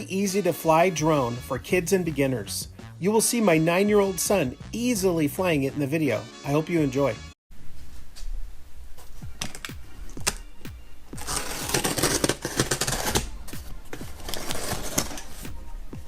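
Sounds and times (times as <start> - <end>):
background music with thumping beat: 0.6 - 5.8, 9.2 - 16.0.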